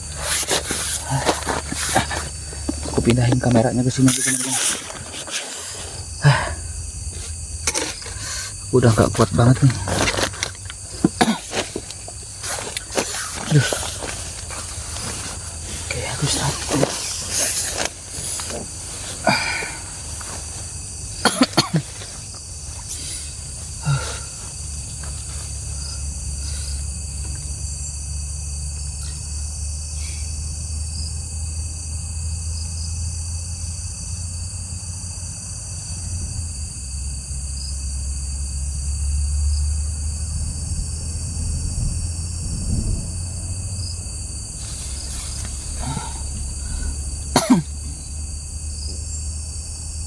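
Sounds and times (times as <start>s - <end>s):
insects chirring: 0.0s - 50.0s
low even rumble: 41.4s - 44.6s.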